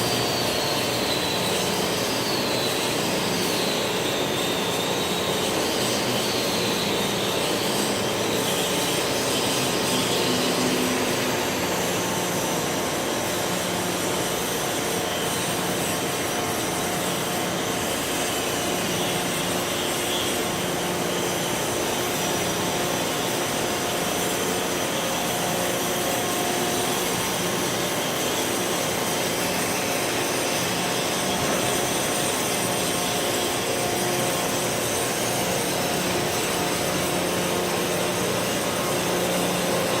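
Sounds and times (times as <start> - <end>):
industrial noise: 0.0 - 40.0.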